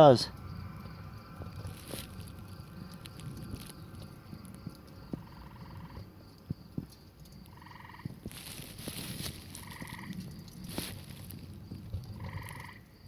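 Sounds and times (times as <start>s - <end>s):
animal pulsed trill: 12.1s - 12.9s.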